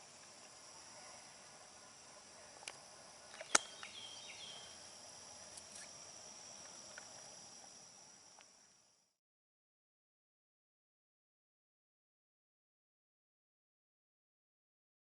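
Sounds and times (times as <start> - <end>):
crickets and insects chorus: 0.0 - 9.2.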